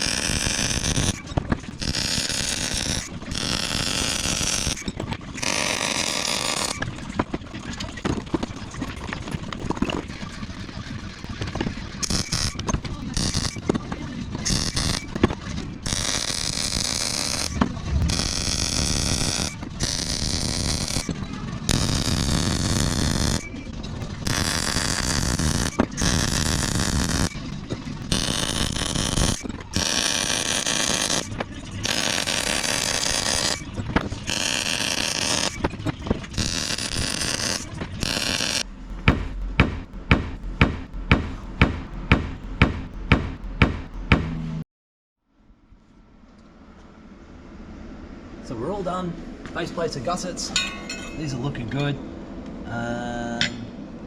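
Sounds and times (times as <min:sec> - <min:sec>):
welder crackling hiss: 0:00.0 - 0:06.8, 0:12.0 - 0:13.6, 0:14.5 - 0:15.2, 0:15.8 - 0:21.1, 0:21.7 - 0:27.4, 0:28.0 - 0:35.6, 0:36.2 - 0:40.4.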